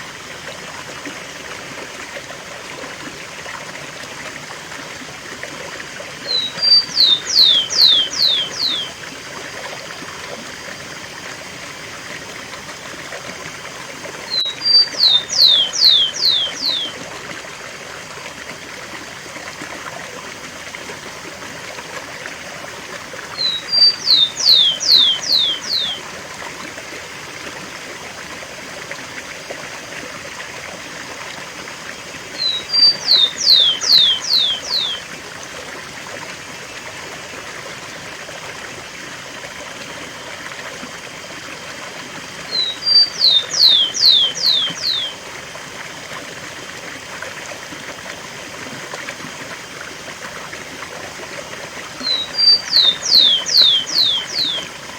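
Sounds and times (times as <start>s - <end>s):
sparrow singing: 6.3s - 8.9s, 14.3s - 17.0s, 23.4s - 26.0s, 32.4s - 35.1s, 42.5s - 45.2s, 52.0s - 54.6s
waterfall rushing: 23.4s - 26.0s, 32.4s - 35.0s, 42.5s - 45.2s, 52.0s - 54.9s.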